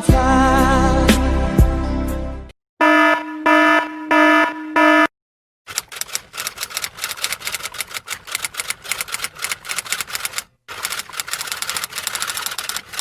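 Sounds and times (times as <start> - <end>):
typing on keyboard keys: 5.7 - 13.0.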